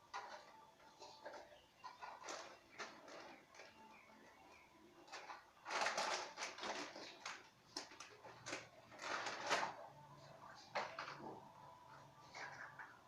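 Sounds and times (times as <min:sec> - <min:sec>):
small objects rustling and clicking: 0:00.0 - 0:09.9.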